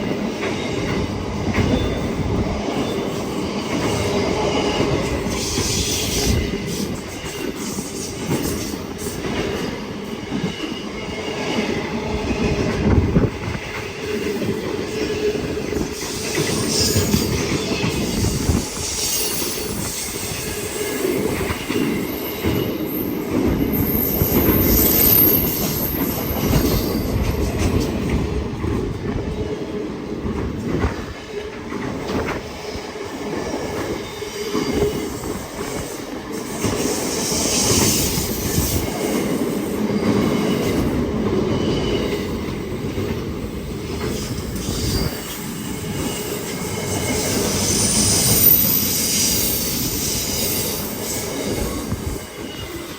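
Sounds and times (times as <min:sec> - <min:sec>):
train wheels rumbling on rail: 0:00.0 - 0:52.9
high wheel squeal: 0:16.0 - 0:27.6, 0:44.1 - 0:52.9.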